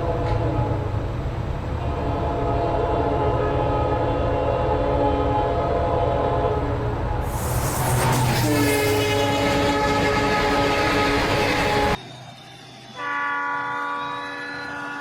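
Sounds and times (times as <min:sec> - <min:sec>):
train horn blast: 0:00.0 - 0:00.9, 0:01.8 - 0:12.0, 0:13.0 - 0:15.0
train rushing past: 0:00.0 - 0:15.0
locomotive engine rumble: 0:06.8 - 0:13.1.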